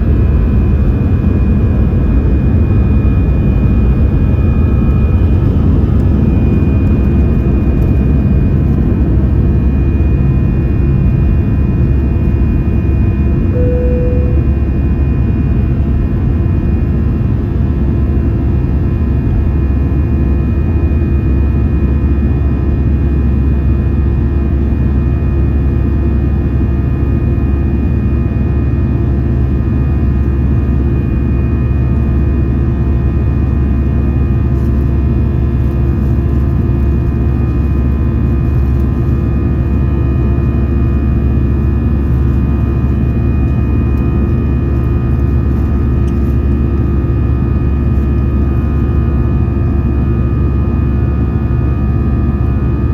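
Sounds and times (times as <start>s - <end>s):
jet engine cabin rumble: 0.0s - 52.9s.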